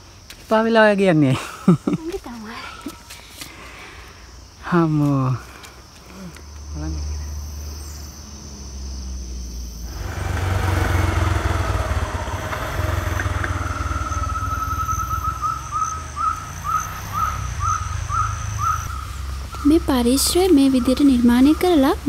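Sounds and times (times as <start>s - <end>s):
high insect buzz: 0.0s - 22.0s
bird calling short rising notes: 9.8s - 19.8s
low rumble: 9.9s - 16.4s.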